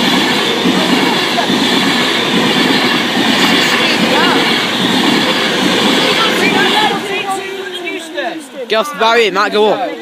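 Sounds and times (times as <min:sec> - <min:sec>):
train wheels rushing on rail: 0:00.0 - 0:10.0.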